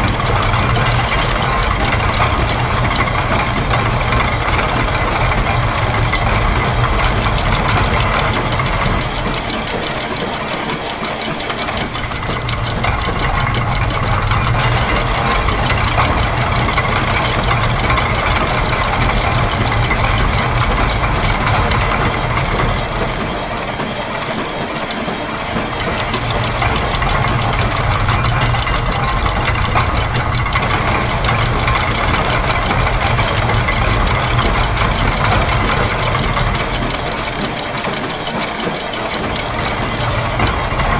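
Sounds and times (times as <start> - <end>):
factory machine din: 0.0 - 40.9
gears and ratchets: 0.0 - 40.9.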